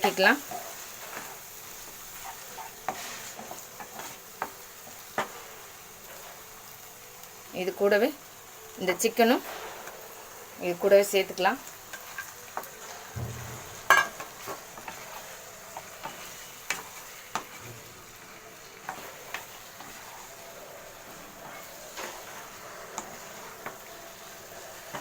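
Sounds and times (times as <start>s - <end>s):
spatula scraping a pan: 0.0s - 6.6s, 11.6s - 25.0s
food sizzling in a pan: 0.0s - 25.0s.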